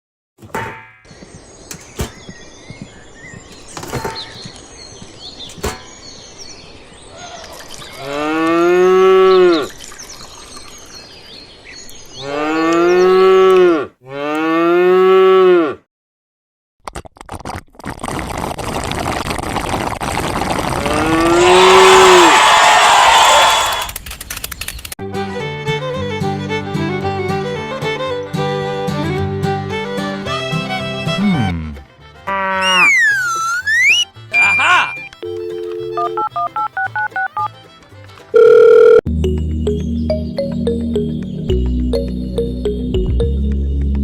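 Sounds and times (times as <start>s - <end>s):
cow mooing: 12.2s - 15.8s.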